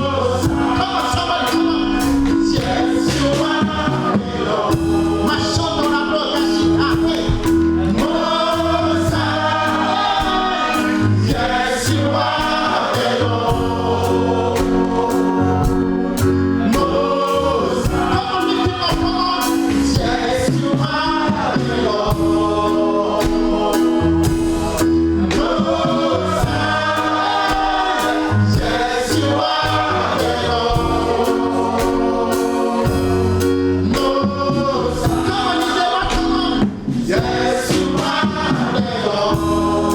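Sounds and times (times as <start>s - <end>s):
drums: 0.0s - 39.9s
gospel choir singing: 0.0s - 39.9s
keyboard chords: 0.0s - 39.9s.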